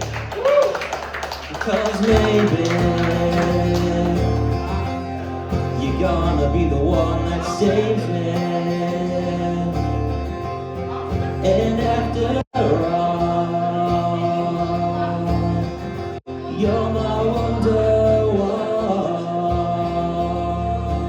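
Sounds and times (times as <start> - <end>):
acoustic guitar playing chords: 1.7 - 21.0
person singing: 11.1 - 21.0.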